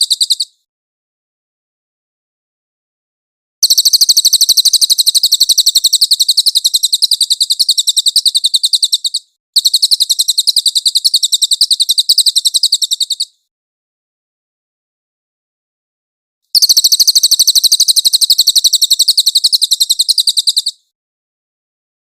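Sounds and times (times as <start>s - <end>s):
songbird high-pitched trills: 0.0s - 0.6s, 3.6s - 13.4s, 16.6s - 20.9s.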